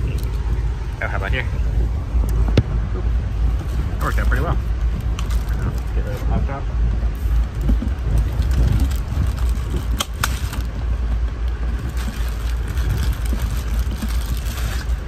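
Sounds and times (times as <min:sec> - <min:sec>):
train rumbling from inside: 0:00.0 - 0:15.0
plastic bag crinkling: 0:11.8 - 0:15.0.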